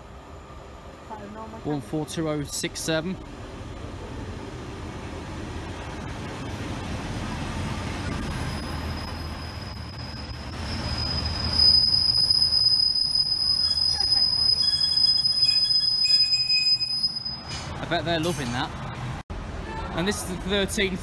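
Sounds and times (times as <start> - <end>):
diesel train rumbling: 0.0 - 21.0
high steady squeal: 7.9 - 17.6.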